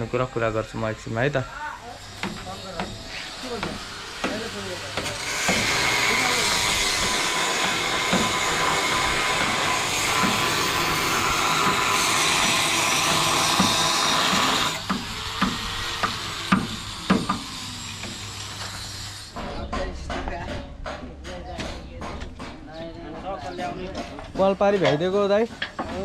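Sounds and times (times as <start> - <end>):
hissing power tool: 0.0 - 19.4.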